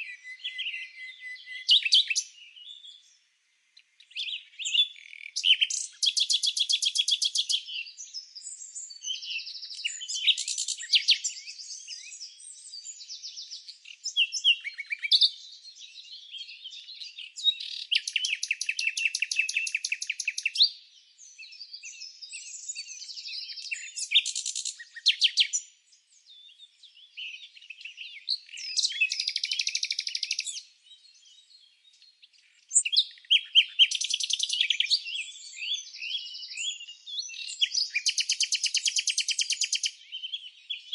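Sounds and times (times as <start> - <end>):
songbirds chirping and singing: 0.0 - 40.9.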